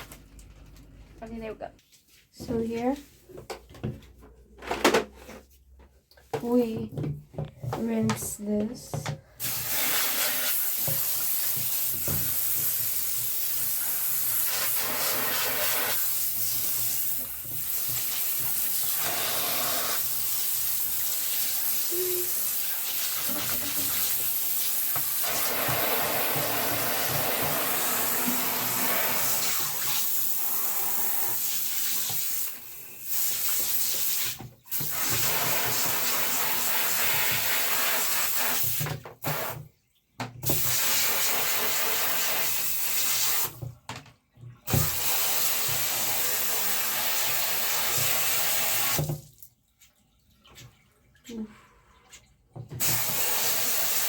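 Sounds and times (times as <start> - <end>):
bathtub tap running: 6.4 - 30.1.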